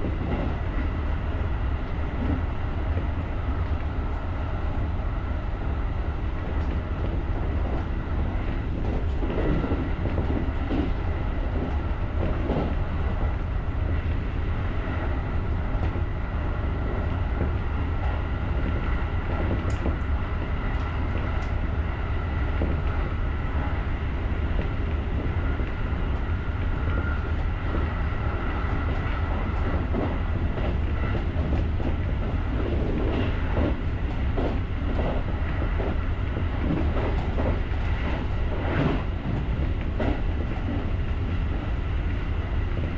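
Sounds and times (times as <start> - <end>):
train low rumble: 0.0 - 42.9.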